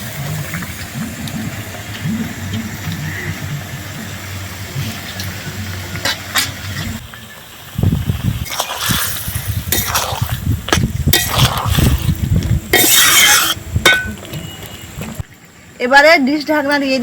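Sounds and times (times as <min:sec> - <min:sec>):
loud hiss: 0:00.0 - 0:14.0
curry boiling: 0:00.0 - 0:16.9
metal spoon scraping a pot: 0:08.5 - 0:10.4, 0:11.1 - 0:12.1, 0:12.7 - 0:14.2.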